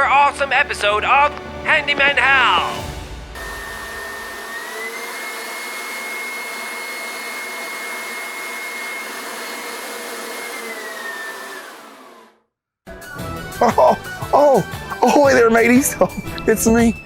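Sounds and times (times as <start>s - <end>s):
whirring motor: 3.4s - 12.4s.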